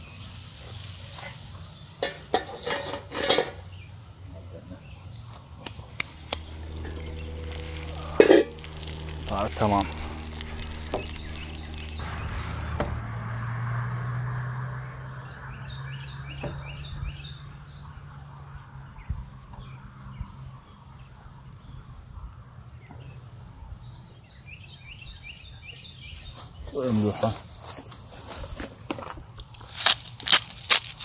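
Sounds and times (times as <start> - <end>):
low outdoor hum: 0.0 - 25.9
songbird chirping: 3.6 - 27.3.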